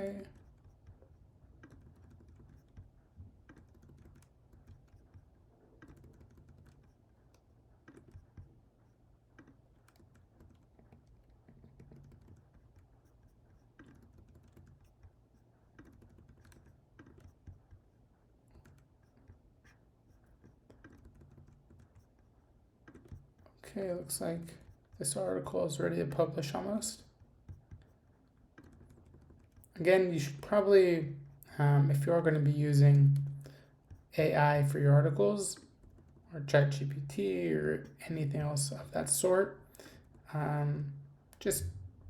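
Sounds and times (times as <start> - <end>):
keyboard typing: 0.0 - 23.6, 25.8 - 30.4.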